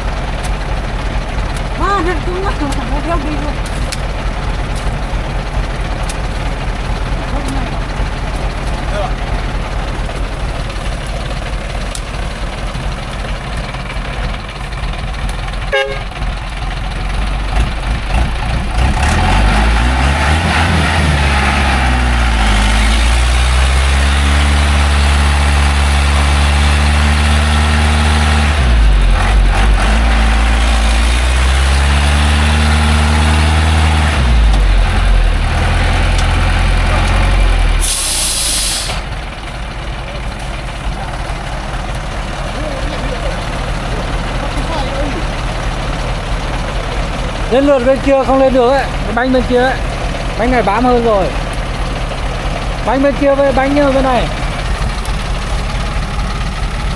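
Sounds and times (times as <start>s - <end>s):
truck engine revving: 0.0s - 56.9s
short sharp hiss: 36.4s - 39.4s.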